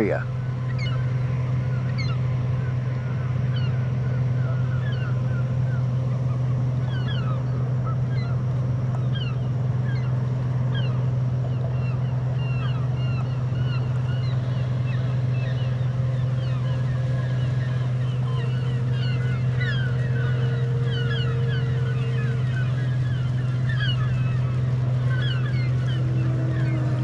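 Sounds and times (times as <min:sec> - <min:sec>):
low hum: 0:00.0 - 0:27.0
small birds chirping: 0:10.7 - 0:27.0.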